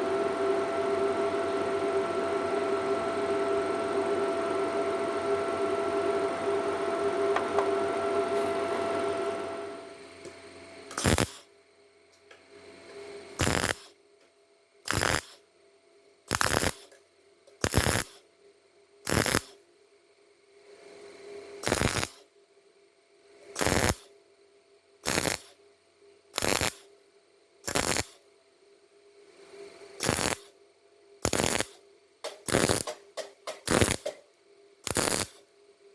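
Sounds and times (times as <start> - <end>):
welding arc crackling: 10.9 - 11.5, 13.4 - 13.9, 14.9 - 15.4, 16.3 - 16.9, 17.6 - 18.2, 19.1 - 19.6, 21.6 - 22.2, 23.6 - 24.1, 25.0 - 25.6, 26.4 - 26.9, 27.7 - 28.2, 30.0 - 30.5, 31.2 - 34.2, 34.8 - 35.4.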